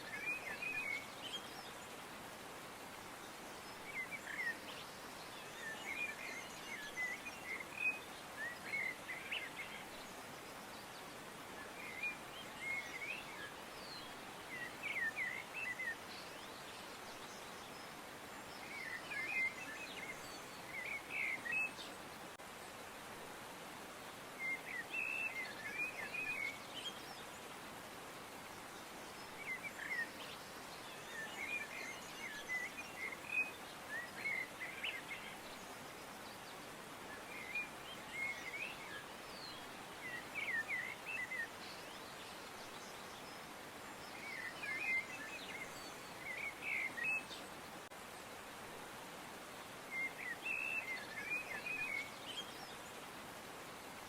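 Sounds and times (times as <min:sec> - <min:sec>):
steady background hiss: 0:00.0 - 0:54.0
birds chirping and twittering: 0:28.8 - 0:47.9, 0:49.6 - 0:53.4.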